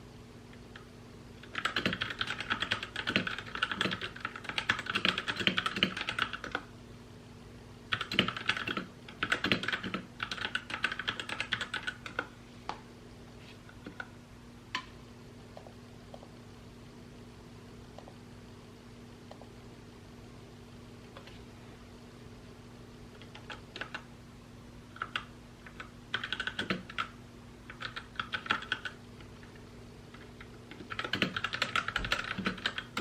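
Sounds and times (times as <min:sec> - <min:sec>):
typing on mechanical keyboard: 0:01.4 - 0:06.7, 0:07.9 - 0:12.3, 0:23.2 - 0:24.0, 0:25.0 - 0:27.1, 0:27.7 - 0:29.0, 0:30.1 - 0:33.0.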